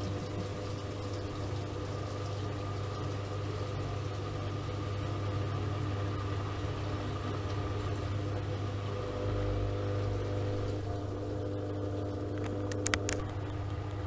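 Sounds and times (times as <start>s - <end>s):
washing machine motor hum: 0.0s - 14.0s
sharp clicks: 12.4s - 13.4s.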